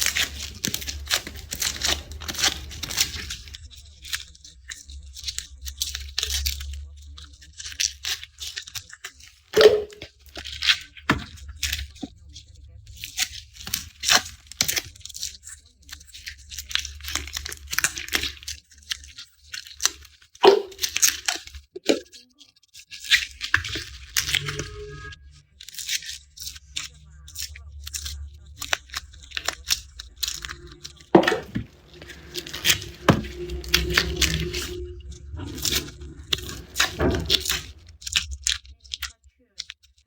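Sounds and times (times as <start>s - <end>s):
garlic skins tearing and crackling: 0.0s - 3.6s
low steady hum: 0.0s - 8.3s, 23.8s - 39.1s.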